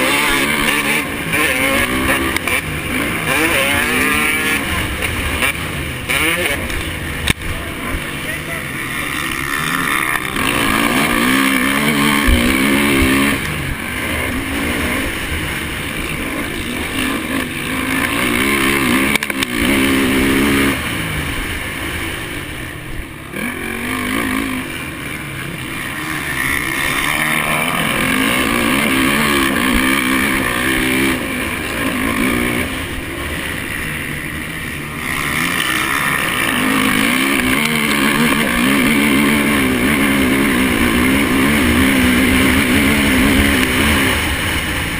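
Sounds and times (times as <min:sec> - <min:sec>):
motocross bike engine revving: 0:00.0 - 0:44.9.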